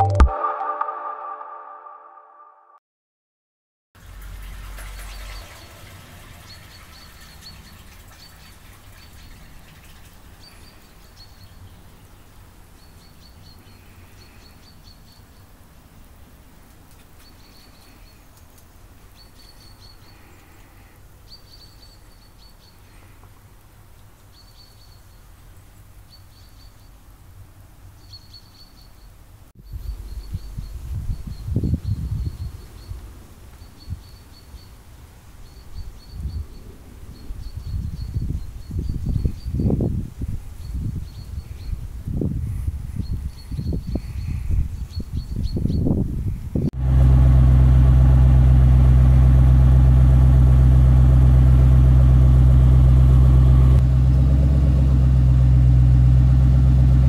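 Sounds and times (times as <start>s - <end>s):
low outdoor rumble: 4.0s - 11.0s, 29.6s - 33.4s, 46.7s - 57.0s.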